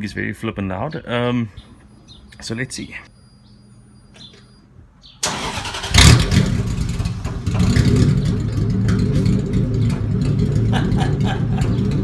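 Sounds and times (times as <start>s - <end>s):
loud engine starting and running: 5.2s - 12.0s.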